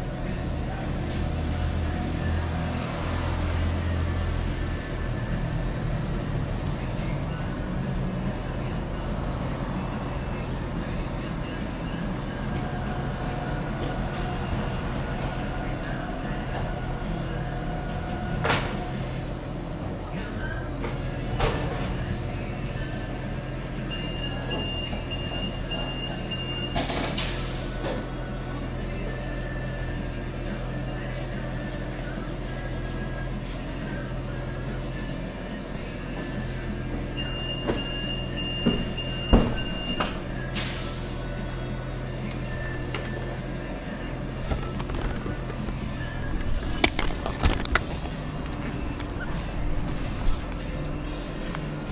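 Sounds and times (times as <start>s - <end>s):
road and wind noise: 0.0s - 23.9s, 41.2s - 51.9s.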